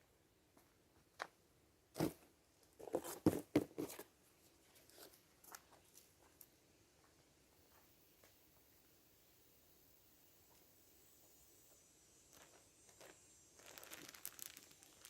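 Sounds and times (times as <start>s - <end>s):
crunching rustles: 12.4s - 15.0s.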